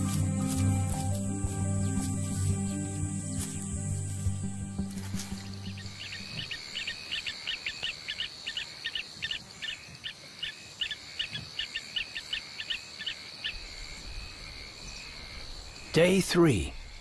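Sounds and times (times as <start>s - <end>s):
insect buzz: 0.0s - 17.0s
bird chirping: 5.0s - 17.0s.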